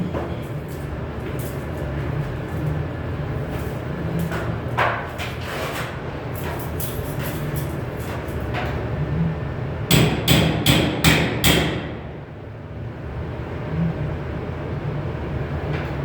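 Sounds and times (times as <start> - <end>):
steady low hum: 0.0 - 16.0
hammer striking sheet metal: 9.9 - 12.2.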